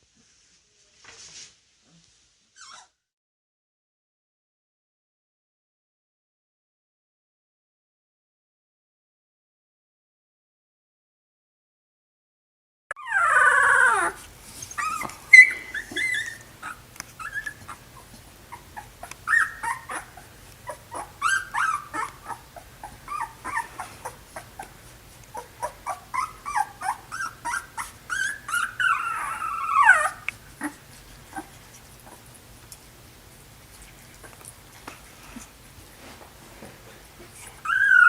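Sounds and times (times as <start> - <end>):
puppies whimpering and yipping: 2.6 - 2.9, 12.9 - 32.3, 37.3 - 38.0.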